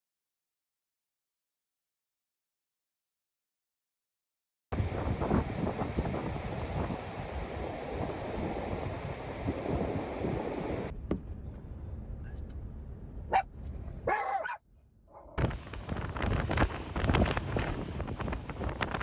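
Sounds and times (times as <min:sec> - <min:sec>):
wind buffeting microphone: 0:04.8 - 0:12.7, 0:15.3 - 0:19.0.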